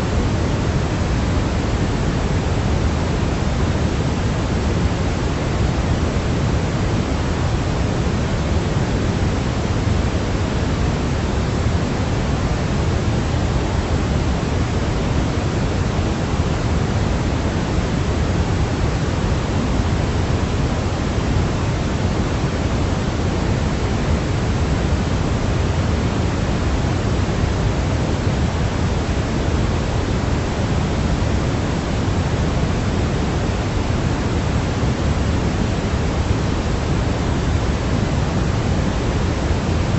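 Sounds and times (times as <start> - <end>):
steady low hiss: 0.0 - 39.9.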